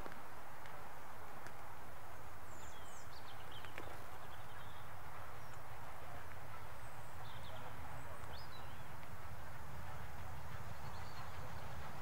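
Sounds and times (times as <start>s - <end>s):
small birds chirping: 2.2s - 5.9s, 6.5s - 12.0s.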